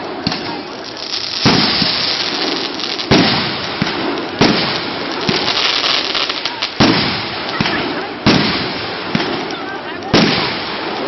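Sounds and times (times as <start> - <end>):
firework bangs: 0.0 - 11.0
fireworks crackling and popping: 0.0 - 11.0.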